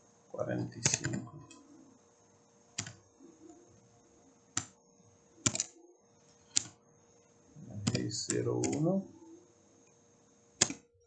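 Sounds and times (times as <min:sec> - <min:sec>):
faint steady hum: 0:00.0 - 0:11.0
keyboard keys clicking: 0:00.8 - 0:01.2, 0:02.8 - 0:03.0, 0:05.4 - 0:05.7, 0:07.8 - 0:08.9.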